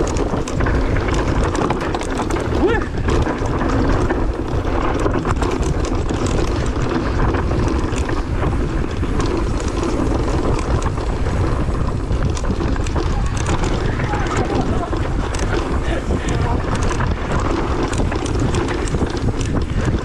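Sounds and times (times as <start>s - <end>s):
bike rattling on dirt trail: 0.0s - 20.0s
wind buffeting microphone: 0.0s - 20.0s.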